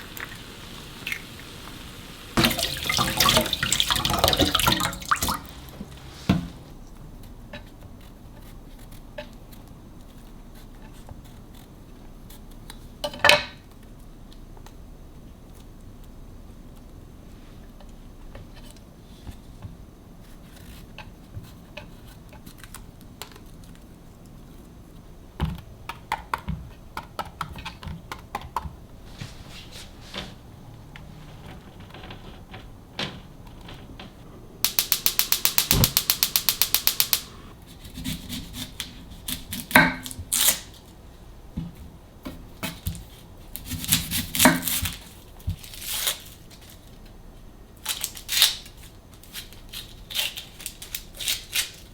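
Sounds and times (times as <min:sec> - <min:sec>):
containers and utensils clicking: 0:02.4 - 0:06.1, 0:30.2 - 0:37.5
ratchet-like ticks: 0:34.6 - 0:37.4.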